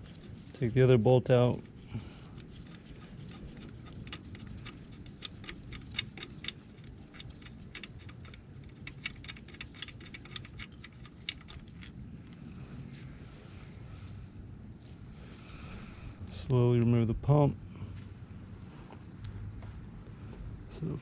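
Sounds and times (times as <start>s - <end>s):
hand ratchet clicking: 3.3s - 11.8s.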